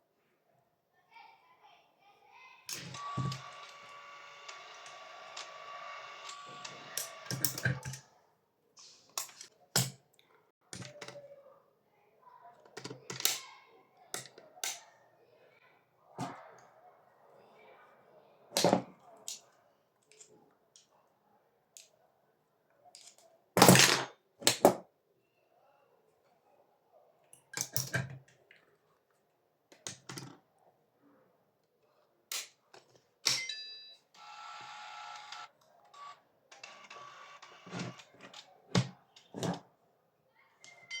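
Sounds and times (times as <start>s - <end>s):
short buzzing whir: 2.8s - 7.5s.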